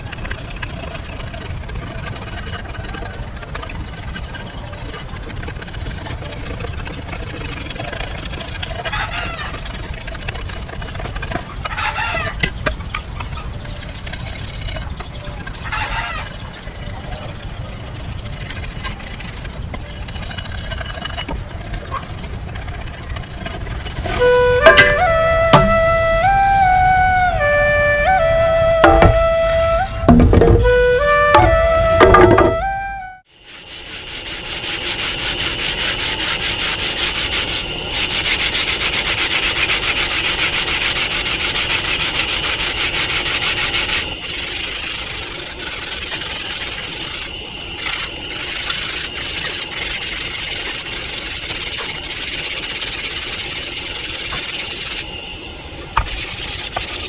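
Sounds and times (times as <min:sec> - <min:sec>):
flute music: 0:24.0 - 0:33.3
wood being scraped or sanded: 0:33.4 - 0:55.0, 0:56.1 - 0:57.0.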